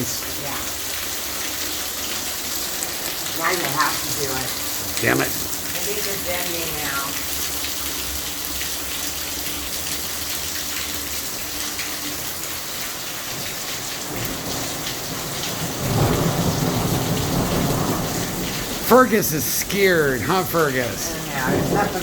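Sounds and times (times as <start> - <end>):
heavy rain: 0.0 - 22.0
thunder rumble: 14.0 - 22.0.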